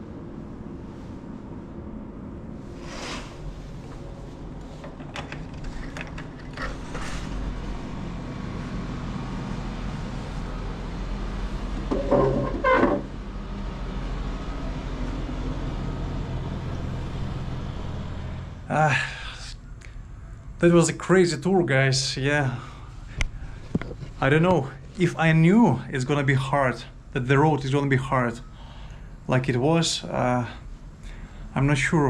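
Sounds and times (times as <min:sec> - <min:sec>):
vehicle engine running steadily: 0:03.5 - 0:19.2.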